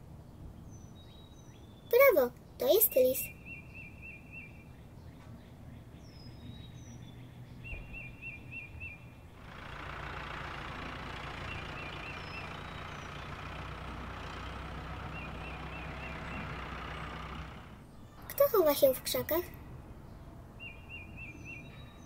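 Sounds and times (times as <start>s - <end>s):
birds chirping: 0.0s - 22.0s
car driving noise: 9.2s - 18.0s
car engine running: 9.4s - 17.9s.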